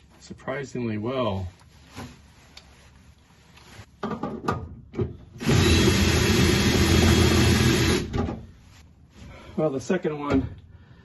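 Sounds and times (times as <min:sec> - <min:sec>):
power drill running: 0:05.4 - 0:08.2.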